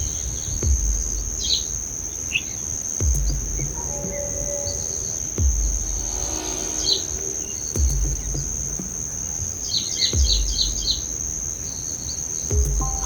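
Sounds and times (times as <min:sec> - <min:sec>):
dull low thumps: 0:00.0 - 0:02.0, 0:03.0 - 0:04.4, 0:05.2 - 0:09.4, 0:10.2 - 0:11.5, 0:12.5 - 0:13.0
bird chirping: 0:00.0 - 0:13.0
high-pitched insect buzz: 0:03.0 - 0:13.0.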